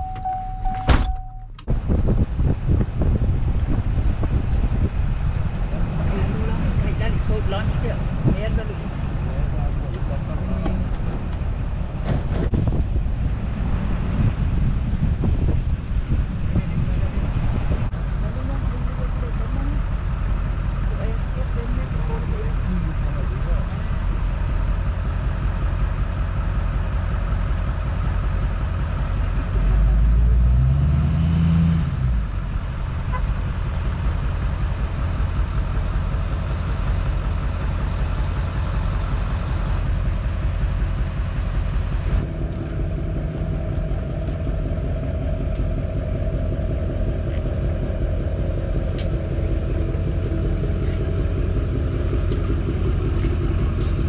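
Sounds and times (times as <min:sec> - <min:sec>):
vehicle engine running: 0:00.0 - 0:54.0
low sound rising in pitch: 0:39.4 - 0:54.0.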